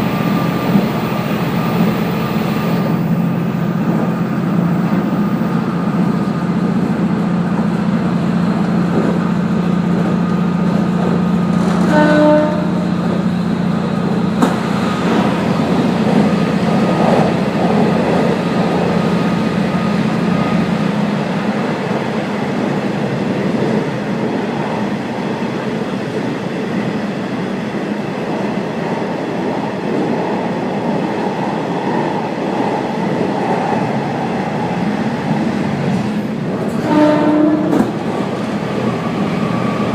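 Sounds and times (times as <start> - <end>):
wheel and rail noise: 0.0 - 39.9
train horn blast: 11.8 - 13.0, 36.7 - 38.0.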